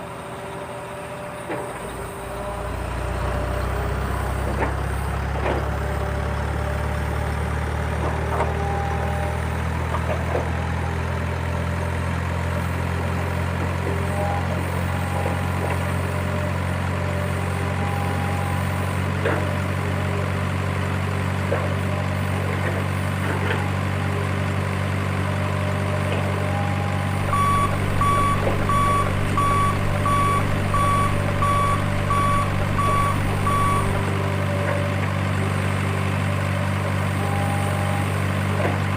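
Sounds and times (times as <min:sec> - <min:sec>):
bulldozer engine running: 0:00.0 - 0:38.9
reversing alarm beeping: 0:26.4 - 0:34.2.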